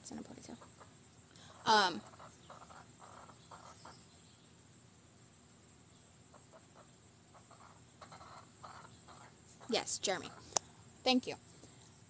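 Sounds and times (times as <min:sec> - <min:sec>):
soft bird calls: 0:00.4 - 0:04.7, 0:05.8 - 0:10.8.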